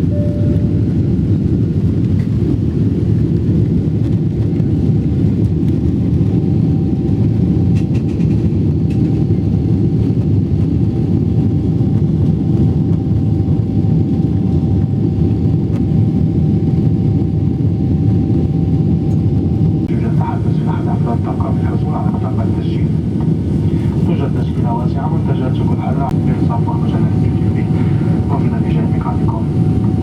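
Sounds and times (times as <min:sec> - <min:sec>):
faint steady whine: 0:00.0 - 0:01.3, 0:19.9 - 0:30.0
jet engine rumble: 0:00.0 - 0:30.0.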